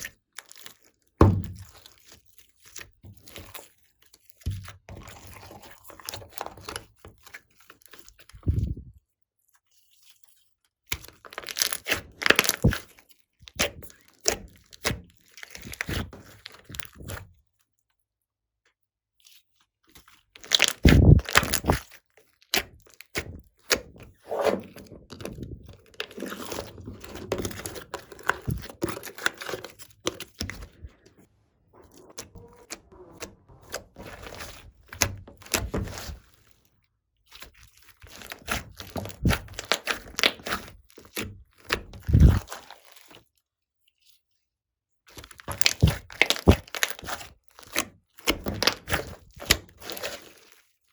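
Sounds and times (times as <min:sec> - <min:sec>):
slime crackling and popping: 0:20.4 - 0:21.9, 0:42.0 - 0:42.7, 0:45.2 - 0:47.2.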